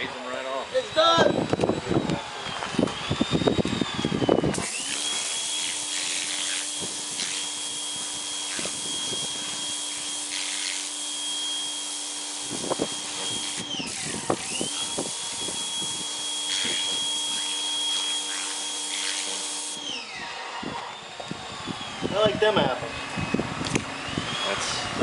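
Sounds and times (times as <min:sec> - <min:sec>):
pressure washer spray: 0:04.6 - 0:19.8.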